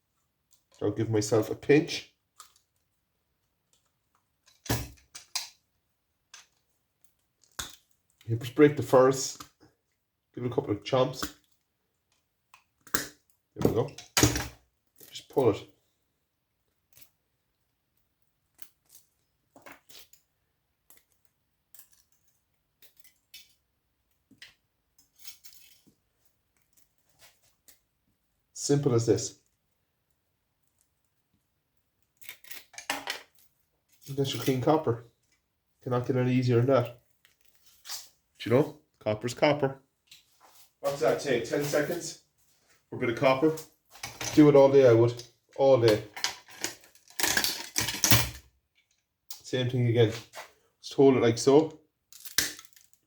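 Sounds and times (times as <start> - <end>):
pliers crunching transformer core: 45.9 - 48.4.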